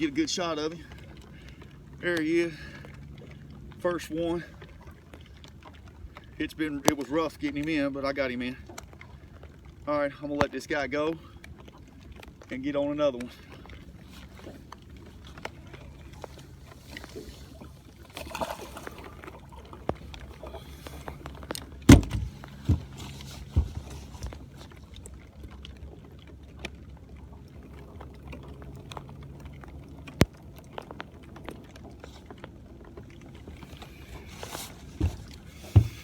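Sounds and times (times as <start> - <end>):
knocks and bumps on a boat: 19.7 - 24.8, 33.5 - 36.0.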